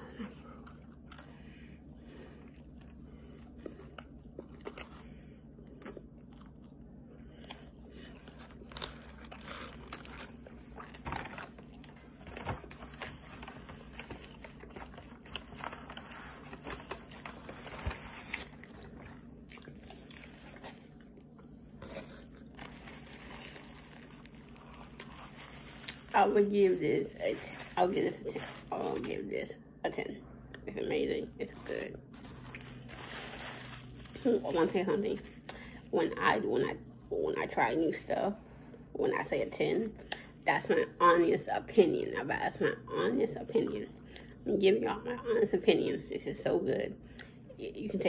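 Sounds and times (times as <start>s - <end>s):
person chewing crunchy food: 0.6s - 26.1s.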